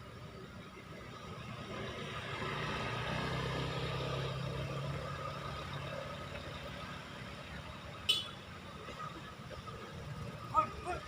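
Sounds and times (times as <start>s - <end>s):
truck engine passing: 1.2s - 8.0s.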